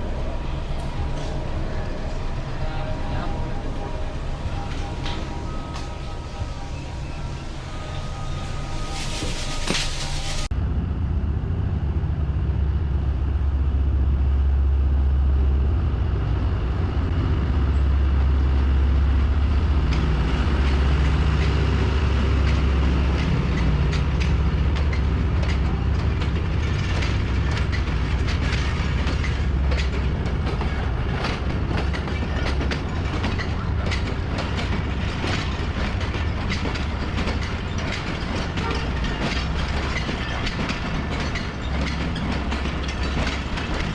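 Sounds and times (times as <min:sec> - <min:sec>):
train rumble: 0:00.0 - 0:43.9
wheels clacking over rail joints: 0:19.8 - 0:43.9.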